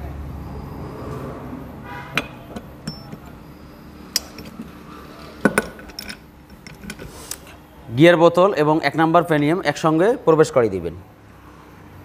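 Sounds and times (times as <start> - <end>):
short metallic ring: 2.0 - 4.6
metal parts knocking and clinking: 2.1 - 7.4.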